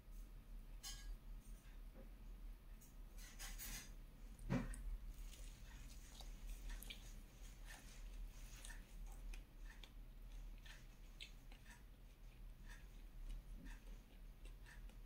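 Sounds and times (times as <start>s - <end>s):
chewing and mouth clicks: 3.7s - 15.0s.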